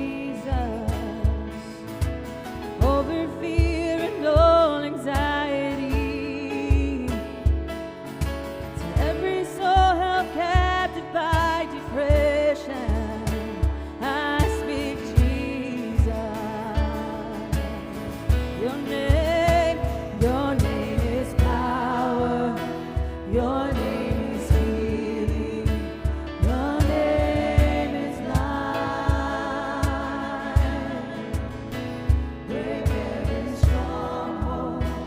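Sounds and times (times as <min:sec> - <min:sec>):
band playing worship music: 0:00.0 - 0:35.0
steady drum beat: 0:00.0 - 0:35.0
person singing: 0:08.8 - 0:35.0.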